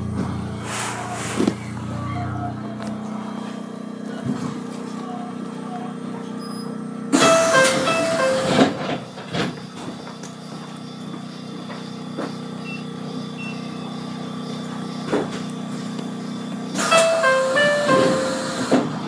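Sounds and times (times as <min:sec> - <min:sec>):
train equipment low hum: 0:00.0 - 0:19.0.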